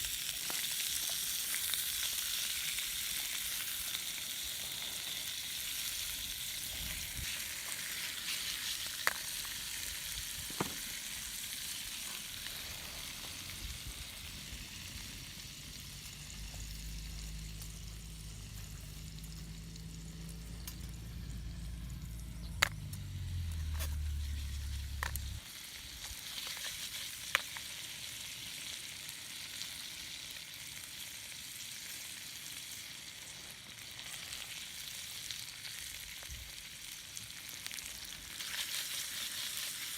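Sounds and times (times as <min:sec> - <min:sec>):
wood fire sizzling: 0:00.0 - 0:39.9
fire popping: 0:00.1 - 0:21.2, 0:22.1 - 0:25.4
low drone: 0:16.6 - 0:25.4.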